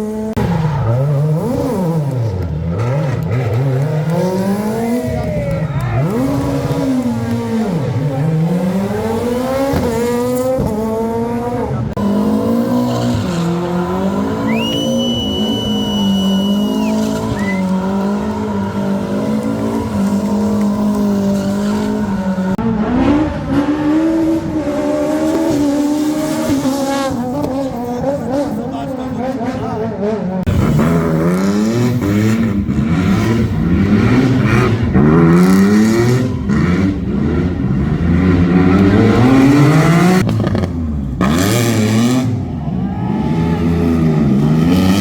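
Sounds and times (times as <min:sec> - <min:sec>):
rally car engine revving: 0:00.0 - 0:45.0
tyres squealing: 0:14.2 - 0:22.6.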